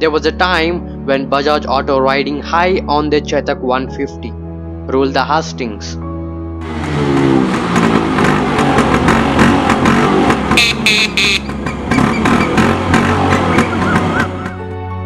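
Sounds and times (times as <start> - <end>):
background music: 0.0 - 15.0
two-stroke motorcycle engine revving: 6.6 - 14.6
sharp engine cracks: 11.4 - 14.6.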